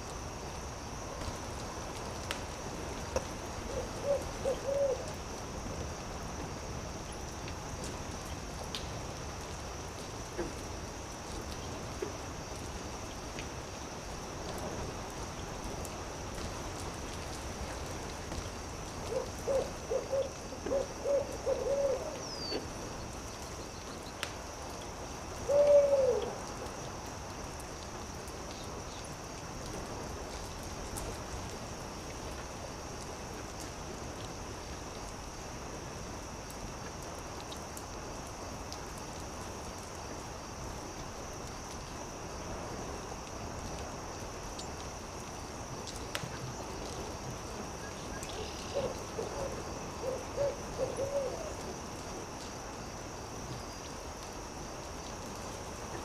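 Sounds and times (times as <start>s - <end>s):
steady background hiss: 0.0s - 56.0s
owl hooting: 3.7s - 5.1s, 19.1s - 22.6s, 25.5s - 26.3s, 48.7s - 51.5s.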